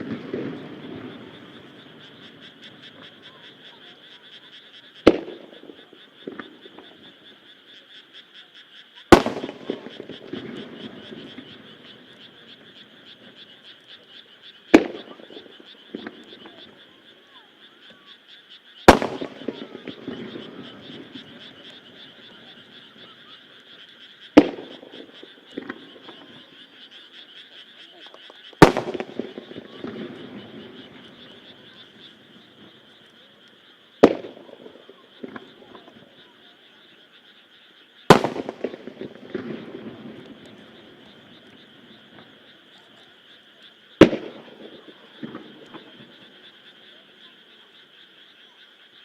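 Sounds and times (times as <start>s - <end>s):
firework crackle: 0.0s - 3.6s, 9.1s - 13.8s, 14.6s - 16.8s, 18.8s - 26.8s, 28.5s - 36.1s, 38.0s - 43.3s, 43.9s - 46.5s
frogs calling: 0.0s - 49.0s
firework shells bursting: 9.1s - 12.1s, 14.7s - 16.6s, 18.9s - 22.3s, 24.3s - 26.3s, 28.5s - 31.7s, 34.0s - 35.8s, 38.1s - 42.4s, 44.0s - 46.2s.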